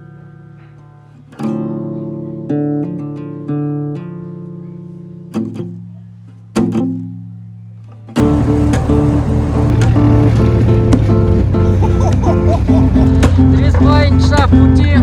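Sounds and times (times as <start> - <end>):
acoustic guitar strummed chords: 8.0 - 15.0.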